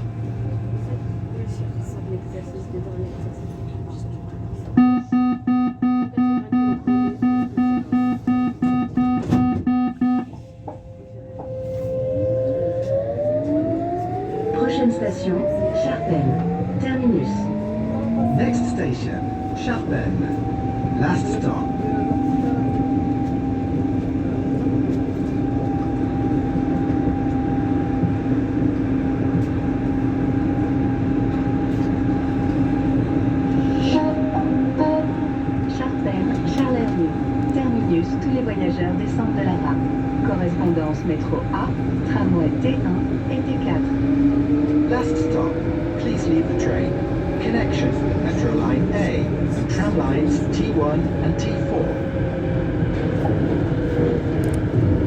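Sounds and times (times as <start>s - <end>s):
metro train rolling rumble: 0.0s - 55.0s
train door warning beeps: 4.8s - 12.0s
high traction whine: 13.3s - 25.9s.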